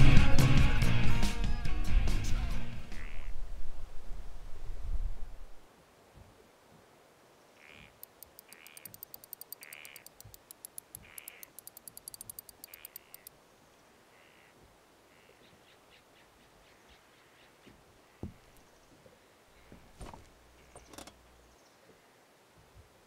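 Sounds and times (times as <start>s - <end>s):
bird calling: 2.9s - 3.4s, 7.6s - 13.4s, 14.1s - 18.8s
rapid high ticking: 8.0s - 13.3s.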